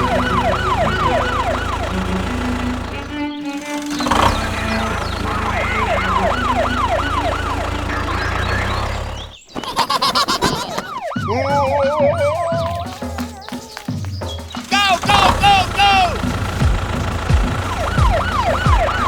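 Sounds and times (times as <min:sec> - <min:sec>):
siren wailing: 0:00.0 - 0:09.4, 0:10.3 - 0:13.9, 0:14.7 - 0:19.0.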